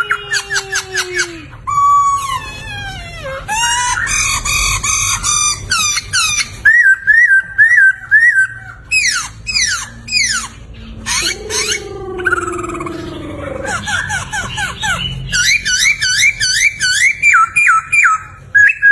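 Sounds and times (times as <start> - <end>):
bird whistled song: 3.5 - 13.0, 13.6 - 18.9.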